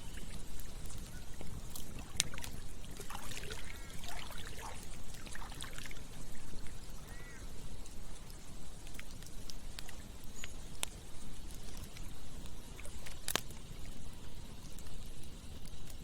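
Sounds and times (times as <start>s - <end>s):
flowing river water: 0.0s - 10.3s
campfire crackling: 0.0s - 16.0s.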